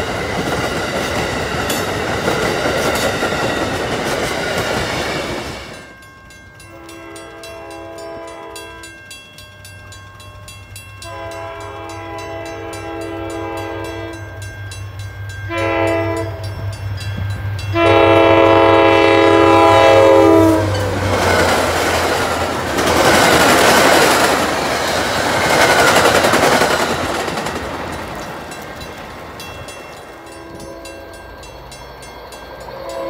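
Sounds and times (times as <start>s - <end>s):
train wheels clattering over rails: 0.0s - 7.6s, 20.6s - 30.6s
locomotive horn blasts: 6.7s - 9.0s, 11.0s - 14.4s, 15.5s - 16.6s, 17.7s - 20.9s, 30.2s - 31.2s, 32.7s - 33.0s.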